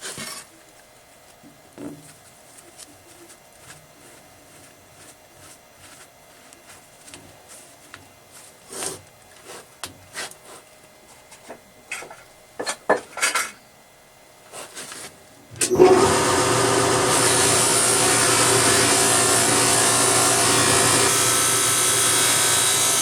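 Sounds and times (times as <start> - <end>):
scroll saw running: 15.6 - 23.0.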